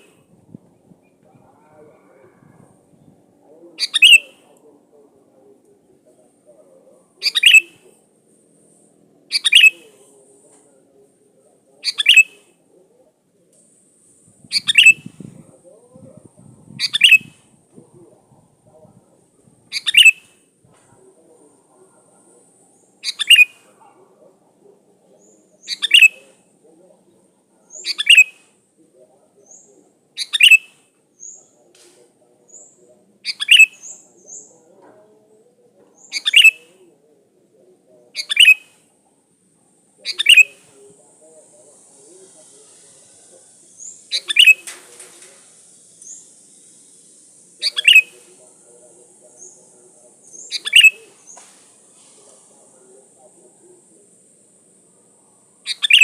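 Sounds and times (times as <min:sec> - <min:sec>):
bulbul calling: 0:03.8 - 0:04.4, 0:07.2 - 0:07.8, 0:09.3 - 0:09.9, 0:11.8 - 0:12.4, 0:14.5 - 0:15.2, 0:16.8 - 0:17.4, 0:19.7 - 0:20.4, 0:23.0 - 0:23.7, 0:25.2 - 0:26.3, 0:27.7 - 0:28.5, 0:29.5 - 0:31.4, 0:32.5 - 0:34.6, 0:36.0 - 0:36.8, 0:38.1 - 0:38.8, 0:40.0 - 0:40.8, 0:43.6 - 0:44.8, 0:45.8 - 0:48.4, 0:49.3 - 0:52.3, 0:55.6 - 0:56.0
faint high chirps: 0:40.0 - 0:54.0, 0:54.8 - 0:56.0.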